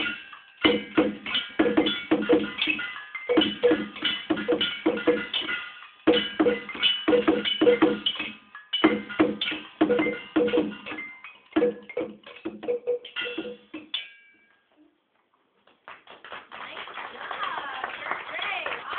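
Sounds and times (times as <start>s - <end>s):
found-object percussion ringing knocks: 0.0s - 14.4s.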